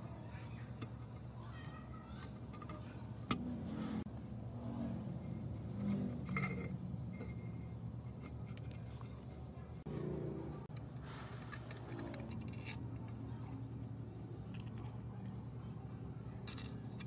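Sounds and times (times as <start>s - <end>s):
low motor hum: 0.0s - 17.0s
metallic clinks and scrapes: 5.6s - 17.0s.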